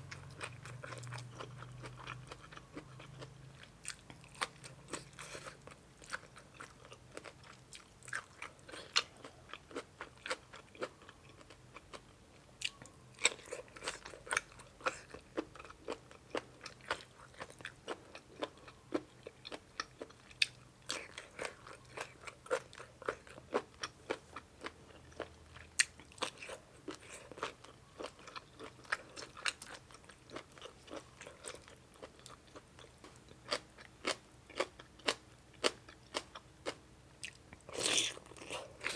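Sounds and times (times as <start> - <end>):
crunchy food chewing: 0.0 - 38.9.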